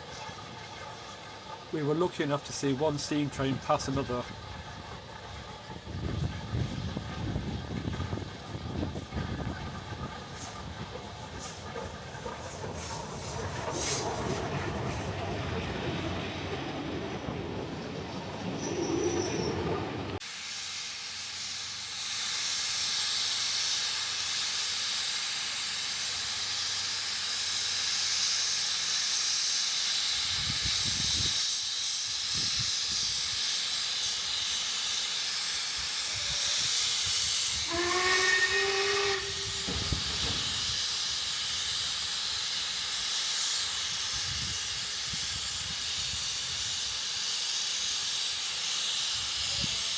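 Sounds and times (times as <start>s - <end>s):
low train rumble: 0.0s - 20.2s, 30.2s - 47.9s
steam locomotive hissing: 1.6s - 49.9s
steam whistle: 35.7s - 41.4s.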